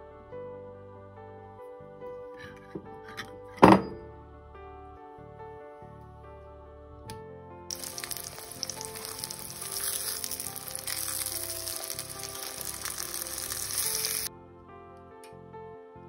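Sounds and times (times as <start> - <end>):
food sizzling in hot oil: 7.7 - 14.3.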